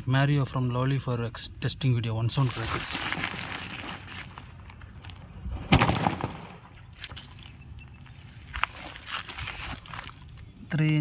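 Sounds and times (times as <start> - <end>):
firecracker bang: 5.6 - 6.7.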